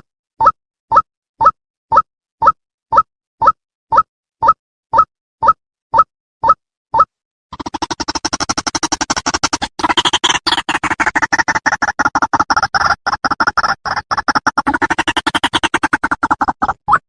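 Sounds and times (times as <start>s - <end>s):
harsh stuttering bird calls: 7.6s - 17.0s.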